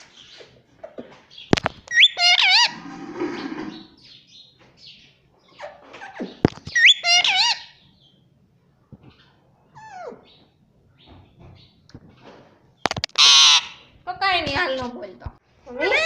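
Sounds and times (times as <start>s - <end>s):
parrot calling: 1.9s - 4.1s, 5.5s - 7.8s, 12.9s - 14.0s.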